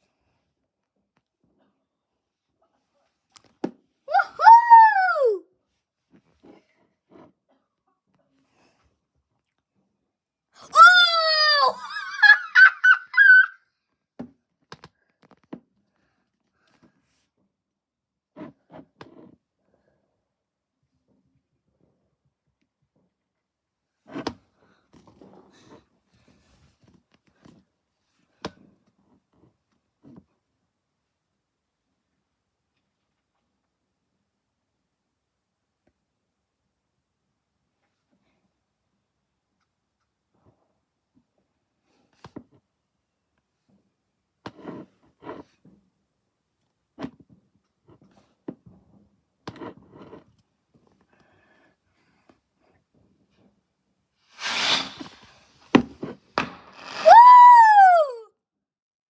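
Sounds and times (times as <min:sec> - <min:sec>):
fireworks crackling and pops: 0:54.3 - 0:55.8, 0:56.4 - 0:57.4
fireworks bangs: 0:54.4 - 0:55.4, 0:56.4 - 0:57.5.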